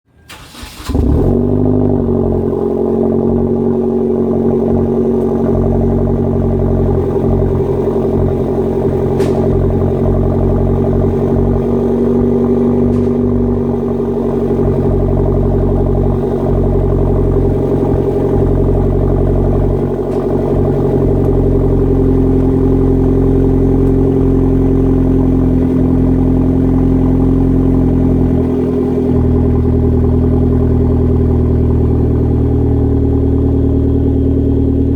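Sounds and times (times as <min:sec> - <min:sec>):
car engine starting and idling: 0:00.1 - 0:34.9.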